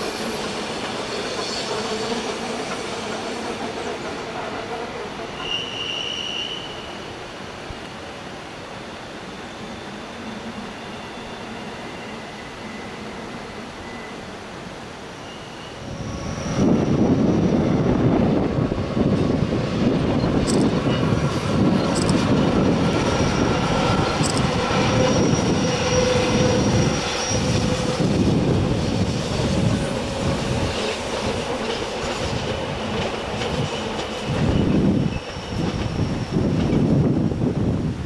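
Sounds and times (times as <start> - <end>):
train wheels rumbling and clattering: 0.0 - 6.2, 15.9 - 38.0
wheel squeal: 5.4 - 7.1, 15.2 - 17.9, 23.0 - 29.5, 33.4 - 36.9.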